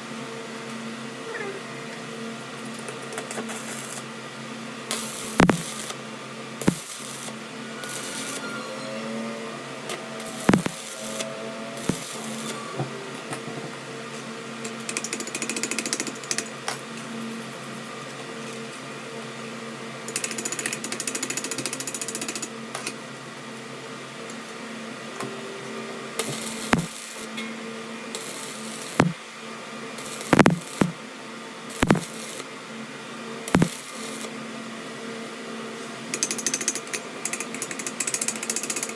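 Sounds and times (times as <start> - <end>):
workshop machine humming: 4.2 - 17.3, 22.5 - 34.9
sharp knocks: 5.4 - 5.6, 31.8 - 32.0.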